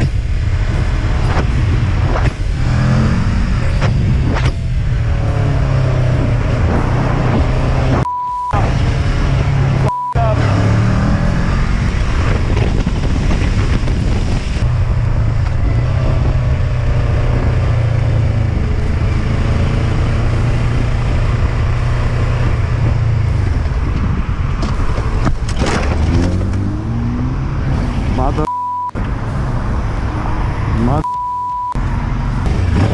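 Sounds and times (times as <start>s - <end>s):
motorcycle engine revving: 0.0s - 32.9s
electronic beep: 5.3s - 8.6s, 9.8s - 11.6s, 28.4s - 29.0s, 30.8s - 31.8s.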